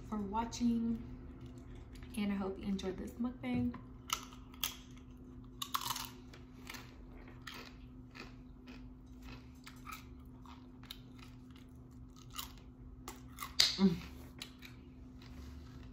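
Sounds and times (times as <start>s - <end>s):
crunching tortilla chips: 4.0s - 13.8s.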